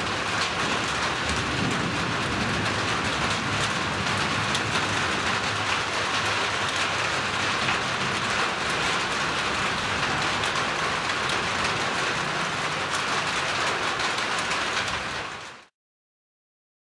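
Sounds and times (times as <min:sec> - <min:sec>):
steady rain falling: 0:00.0 - 0:15.7.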